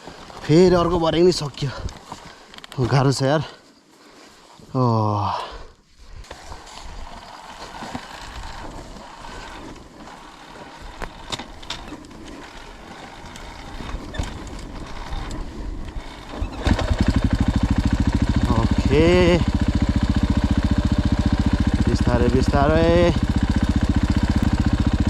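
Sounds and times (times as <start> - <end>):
outdoor background noise: 0.0 - 25.0
dirt bike engine running: 6.2 - 25.0.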